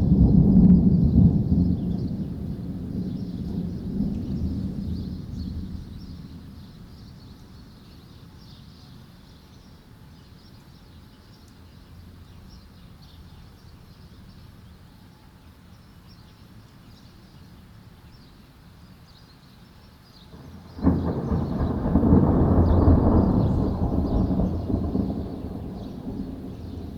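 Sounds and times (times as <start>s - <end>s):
thunderclap: 0.0s - 6.6s, 20.3s - 26.9s
birds chirping: 20.3s - 26.9s.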